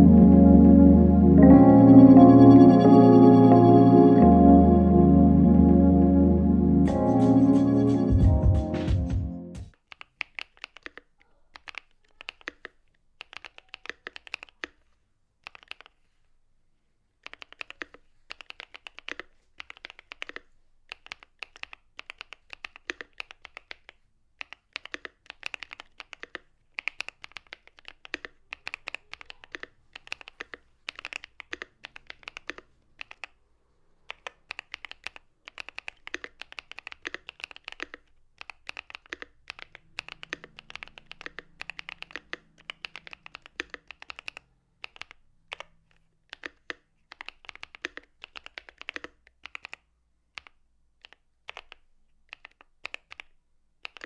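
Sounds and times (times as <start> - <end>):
mechanical keyboard typing: 9.7 - 14.8, 15.4 - 16.0, 17.2 - 33.4, 34.0 - 54.0.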